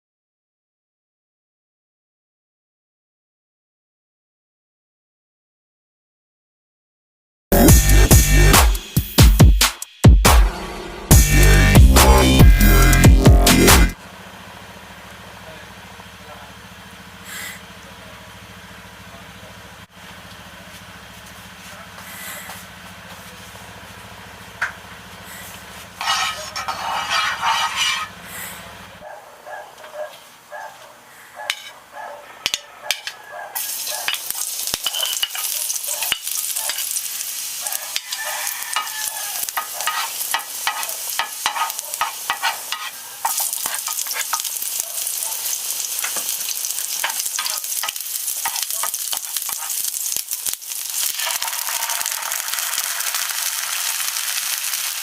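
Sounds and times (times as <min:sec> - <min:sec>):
spatula scraping pan: 0:25.3 - 0:28.5, 0:31.5 - 0:31.8, 0:32.4 - 0:37.0, 0:37.7 - 0:52.3
food sizzling in oil: 0:26.0 - 0:28.2, 0:33.6 - 0:55.0.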